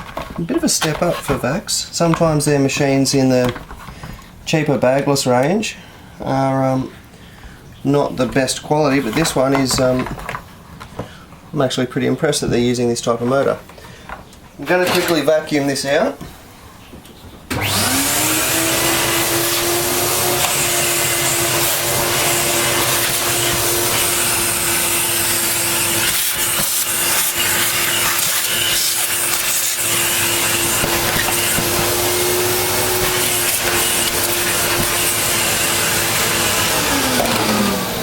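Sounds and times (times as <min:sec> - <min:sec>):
vacuum cleaner motor whine: 0:17.5 - 0:38.0.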